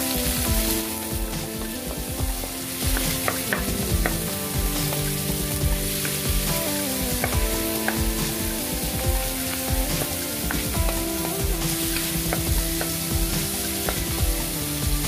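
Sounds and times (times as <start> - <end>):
soft background music: 0.0 - 15.0
vegetables sizzling in hot oil: 0.0 - 15.0.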